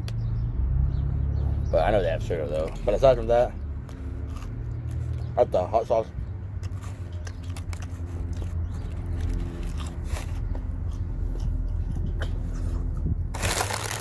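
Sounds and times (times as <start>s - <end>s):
person chewing crunchy food: 3.8s - 5.3s, 6.6s - 14.0s
paper bag rustling: 13.4s - 14.0s.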